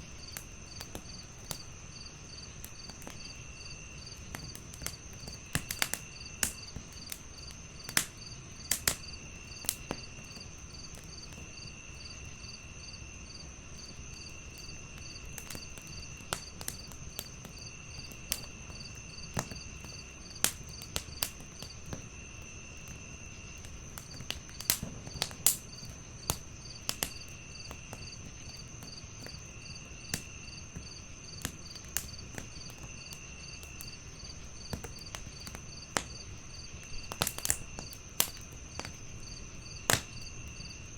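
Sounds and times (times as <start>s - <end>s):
crickets chirping: 0.0s - 40.9s
wood fire crackling: 0.0s - 40.9s.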